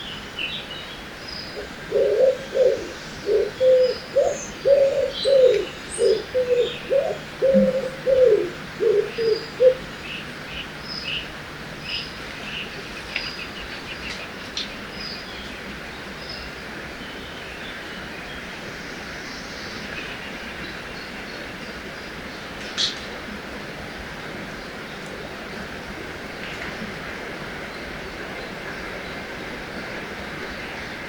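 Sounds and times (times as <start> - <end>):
river water hiss: 0.0 - 31.0
dove cooing: 1.6 - 9.9.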